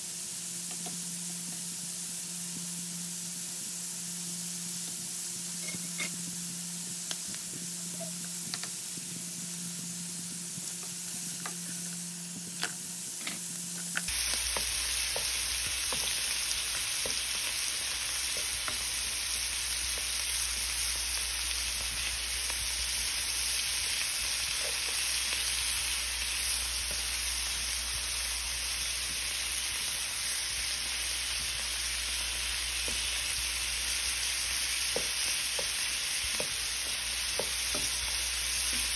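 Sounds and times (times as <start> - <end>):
seafood sizzling in oil: 0.0 - 38.9
spatula tapping a pan: 14.4 - 16.3, 17.0 - 17.3, 34.9 - 38.0.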